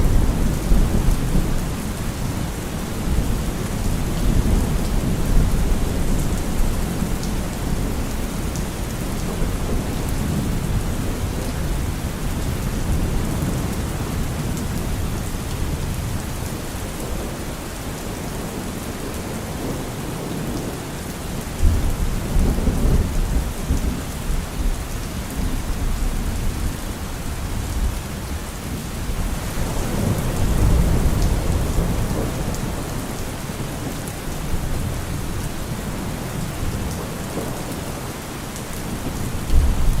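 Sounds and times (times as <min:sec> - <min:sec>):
steady rain: 0:00.0 - 0:40.0
rolling thunder: 0:38.9 - 0:40.0.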